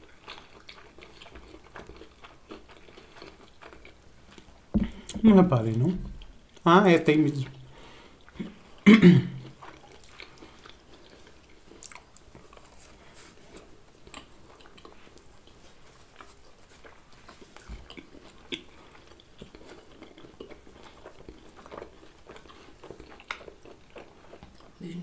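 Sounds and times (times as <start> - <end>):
people chewing food: 0.0 - 6.7, 7.4 - 25.0.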